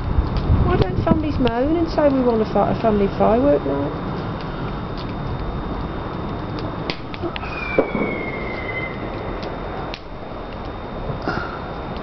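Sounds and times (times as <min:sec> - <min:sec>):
sharp cracks and pops: 0:00.0 - 0:12.0
faint falling whistle: 0:07.4 - 0:09.2.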